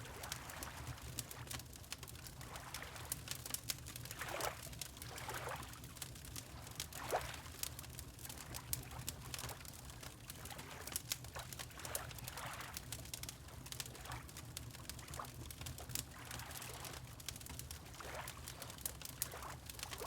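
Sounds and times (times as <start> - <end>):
wood fire crackling: 0.2 - 2.4, 7.5 - 9.4, 10.0 - 20.0.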